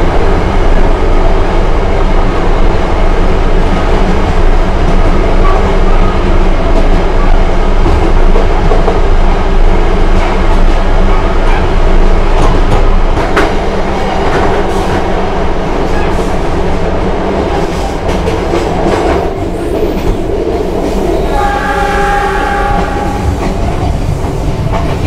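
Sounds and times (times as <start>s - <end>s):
train rumbling: 0.0s - 25.0s
train horn: 21.1s - 23.4s.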